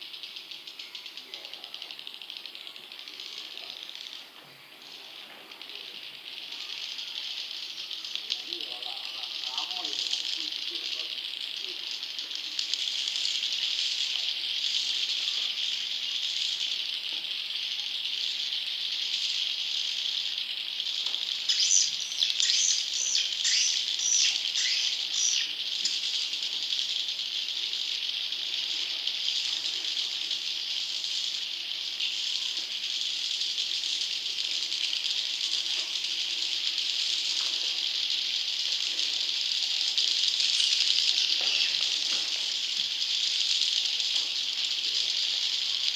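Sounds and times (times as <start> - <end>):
swiftlet chicks twittering: 21.3 - 26.3, 40.3 - 42.0
sharp chirps: 21.4 - 26.1.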